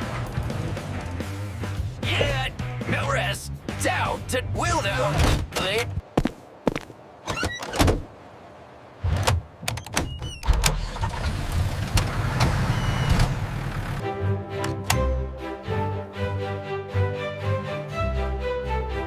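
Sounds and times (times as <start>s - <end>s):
car doors shutting: 9.1s - 14.0s
car engine starting and running: 10.4s - 14.0s.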